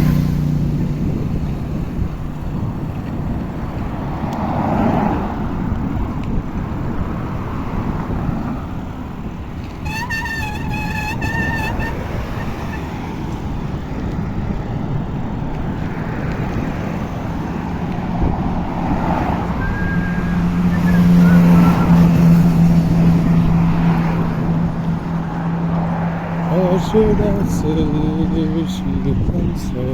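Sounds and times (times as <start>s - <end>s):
vehicle droning past: 0.0s - 2.3s, 15.8s - 29.9s
road traffic rushing: 0.0s - 29.9s.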